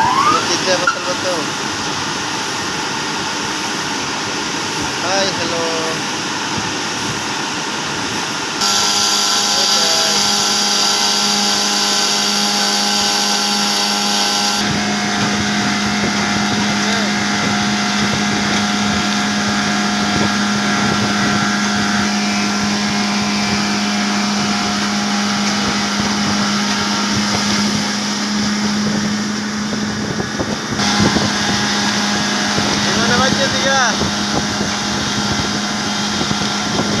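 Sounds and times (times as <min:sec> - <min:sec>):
machine humming: 0:00.0 - 0:37.0.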